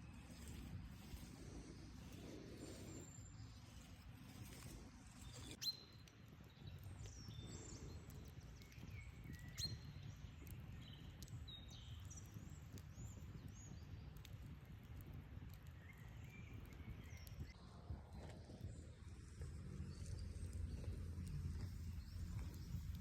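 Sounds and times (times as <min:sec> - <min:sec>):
wild birds chirping: 0:00.0 - 0:14.0
steady low rumble: 0:00.0 - 0:23.0.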